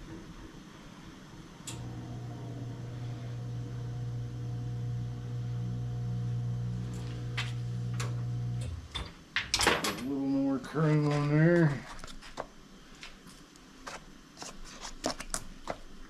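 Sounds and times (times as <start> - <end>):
wheel balancer humming: 1.6 - 9.0.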